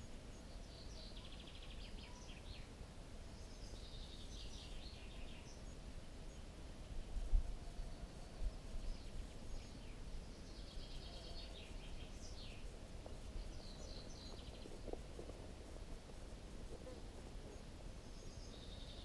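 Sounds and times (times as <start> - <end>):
faint high bird chirps: 0.4 - 2.7, 3.4 - 6.4, 7.6 - 14.8, 16.7 - 19.0.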